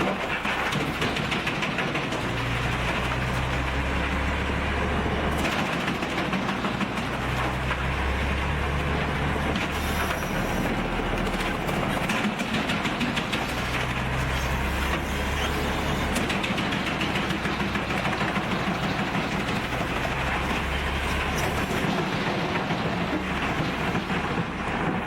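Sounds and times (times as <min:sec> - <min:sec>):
wood chipper engine drone: 0:00.0 - 0:25.0
wood crackling being shredded: 0:00.0 - 0:25.0.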